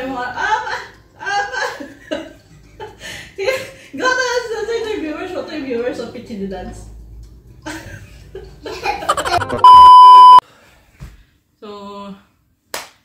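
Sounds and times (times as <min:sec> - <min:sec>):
people laughing and chatting: 0:09.0 - 0:10.0
high electronic beep: 0:09.5 - 0:10.4.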